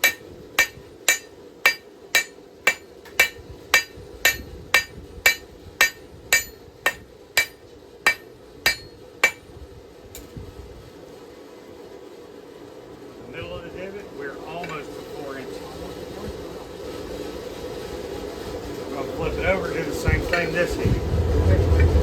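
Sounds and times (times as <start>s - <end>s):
hammer striking steel on anvil: 0.0s - 9.5s.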